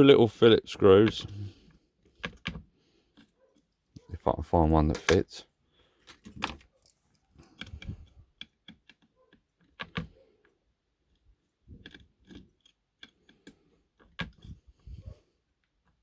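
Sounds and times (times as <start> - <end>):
small tools clicking and clattering: 4.9 - 5.3.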